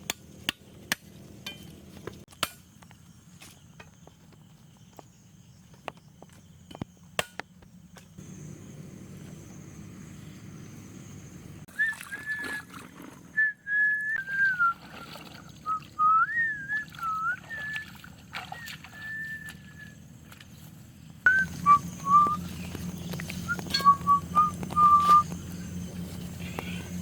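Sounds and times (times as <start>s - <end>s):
person whistling a tune: 11.7s - 12.7s, 13.4s - 15.0s, 15.6s - 17.9s, 18.5s - 20.0s, 21.3s - 22.5s, 23.4s - 25.3s.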